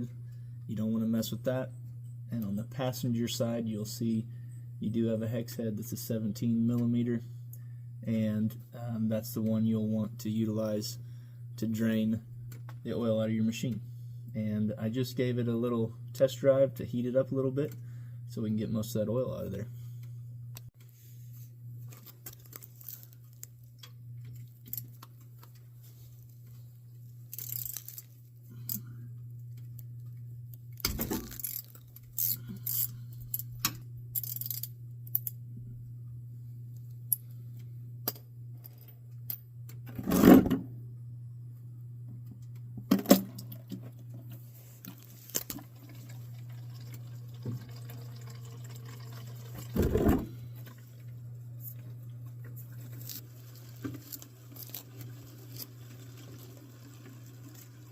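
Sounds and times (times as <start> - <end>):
steady low hum: 0.0 - 56.1
oil pouring and dripping into pan: 45.6 - 49.9.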